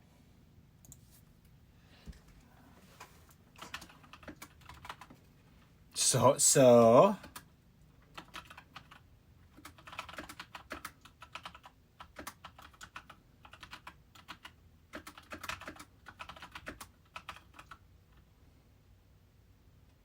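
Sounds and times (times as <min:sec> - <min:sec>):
typing on computer keyboard: 0:03.6 - 0:05.2, 0:07.2 - 0:17.8.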